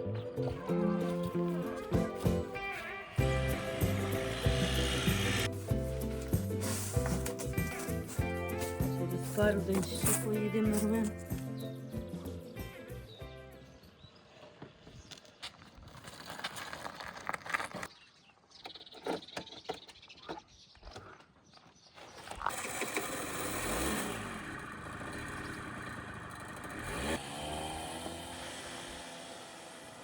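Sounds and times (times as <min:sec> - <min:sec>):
road noise: 0:00.0 - 0:15.4, 0:22.5 - 0:30.0
vehicle engine running: 0:03.2 - 0:11.5, 0:22.6 - 0:30.0.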